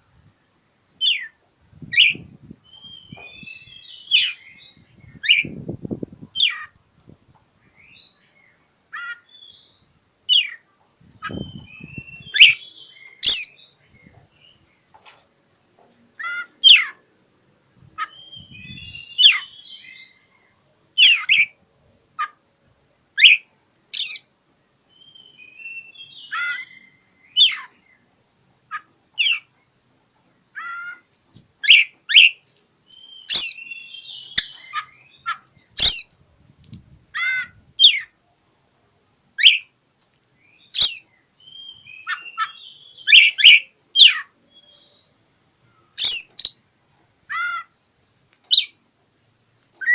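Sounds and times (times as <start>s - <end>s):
bird singing whistles: 1.9s - 5.6s, 11.2s - 14.2s, 18.0s - 20.2s, 23.2s - 24.2s, 24.9s - 27.7s, 31.6s - 36.1s, 39.4s - 39.7s, 40.4s - 45.1s, 45.8s - 46.6s
quiet bird twittering: 31.6s - 36.1s.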